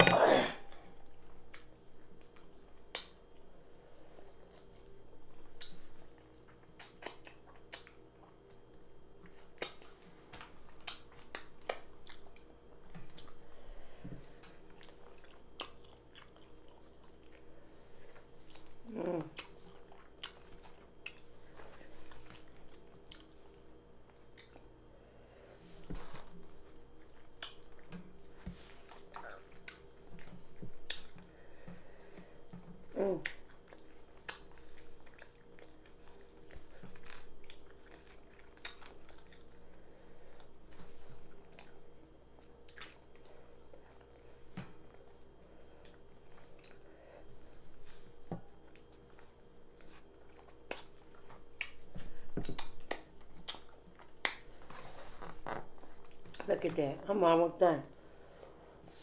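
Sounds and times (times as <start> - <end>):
wet chewing and lip-smacking: 1.4 - 3.5, 4.3 - 8.6, 9.2 - 13.4, 14.4 - 24.8, 26.1 - 31.3, 32.4 - 39.7, 40.3 - 46.9, 47.5 - 54.7.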